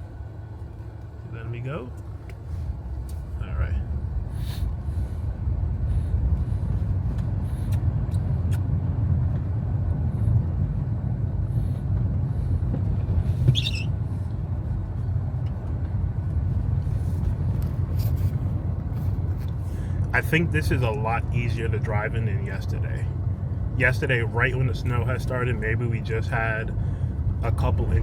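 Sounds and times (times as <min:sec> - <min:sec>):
road and tyre rumble: 0:00.0 - 0:28.0
short high-pitched squeak: 0:13.4 - 0:14.0.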